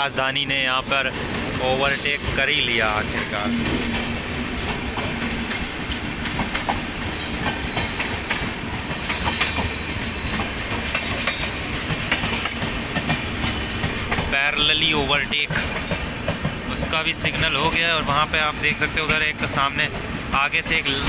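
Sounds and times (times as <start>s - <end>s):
train coaches rumbling: 0.0s - 21.0s
high wheel squeal: 1.6s - 4.2s, 9.4s - 10.5s.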